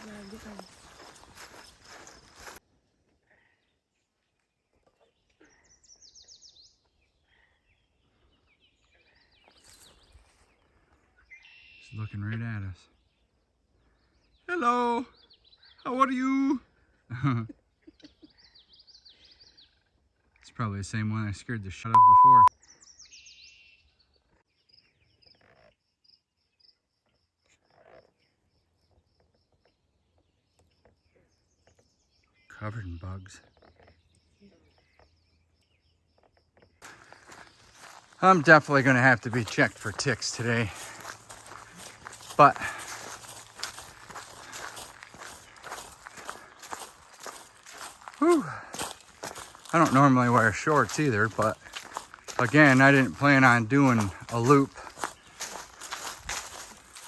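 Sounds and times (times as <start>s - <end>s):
insect chirping: 0.0s - 2.6s, 36.8s - 38.1s
faint bird song: 0.0s - 57.0s.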